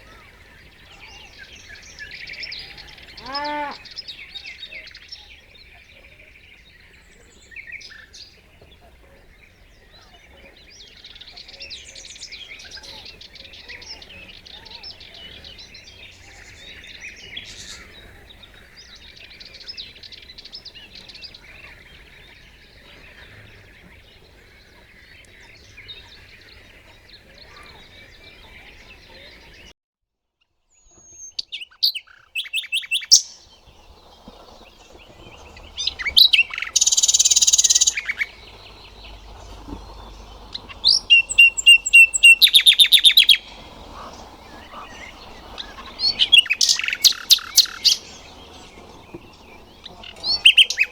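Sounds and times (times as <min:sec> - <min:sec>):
nightingale singing: 0:00.0 - 0:08.6, 0:30.8 - 0:50.9
faint background bird chatter: 0:00.0 - 0:29.8, 0:30.7 - 0:50.9.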